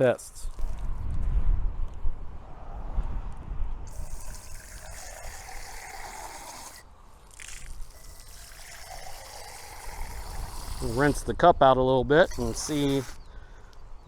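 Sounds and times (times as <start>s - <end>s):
water trickling from hose: 3.9s - 11.4s, 12.2s - 13.3s.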